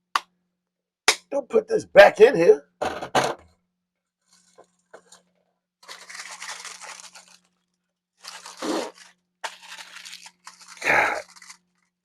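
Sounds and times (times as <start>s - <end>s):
food packaging rustling: 4.2s - 12.0s.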